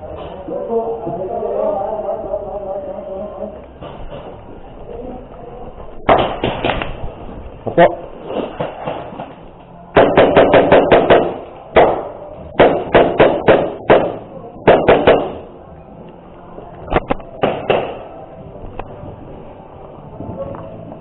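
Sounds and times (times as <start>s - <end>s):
airsoft gun shots: 10.0s - 15.4s.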